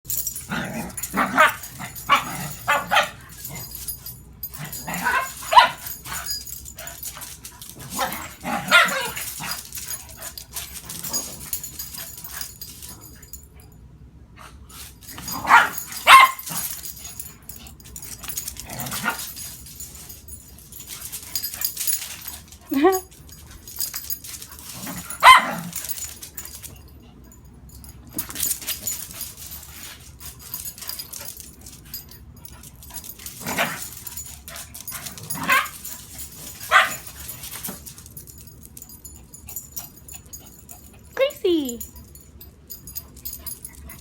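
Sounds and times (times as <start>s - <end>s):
dogs barking and yipping: 0.1s - 12.8s, 15.0s - 26.8s, 28.2s - 37.9s.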